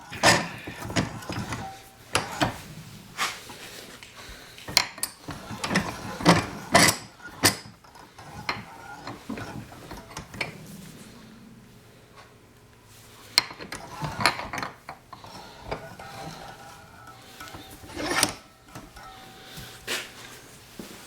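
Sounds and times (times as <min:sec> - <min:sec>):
metal tools clinking on workbench: 0:00.1 - 0:02.6, 0:13.4 - 0:20.6.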